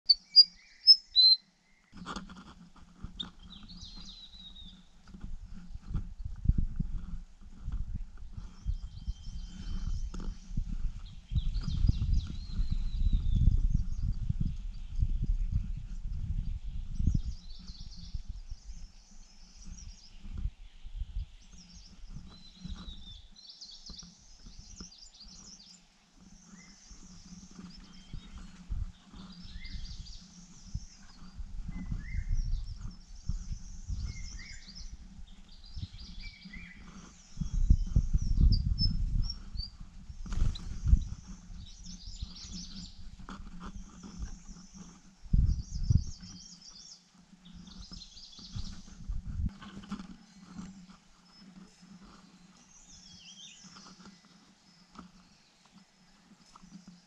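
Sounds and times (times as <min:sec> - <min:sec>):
small birds chirping: 0:00.0 - 0:57.0
rustling: 0:46.1 - 0:57.0.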